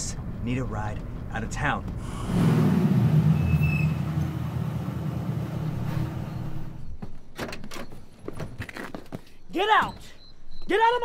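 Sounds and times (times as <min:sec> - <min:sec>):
car engine rumble: 0:00.0 - 0:07.3.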